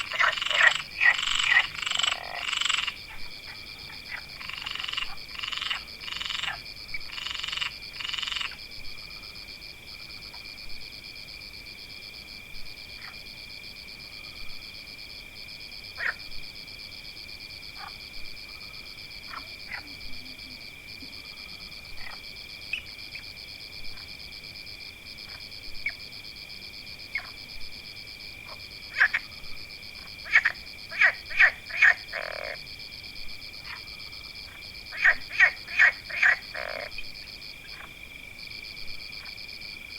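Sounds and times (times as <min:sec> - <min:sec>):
high-pitched frog trilling: 0:00.0 - 0:08.5, 0:30.2 - 0:32.6, 0:34.9 - 0:37.0
frogs croaking: 0:00.0 - 0:39.9.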